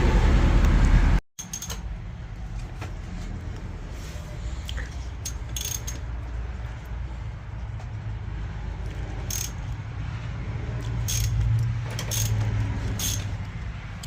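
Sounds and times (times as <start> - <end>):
ratchet clicks: 1.4 - 1.9, 5.2 - 6.2, 9.2 - 9.8, 10.8 - 14.0
metal hand tools clinking: 5.2 - 6.1, 9.2 - 9.8, 11.0 - 13.5.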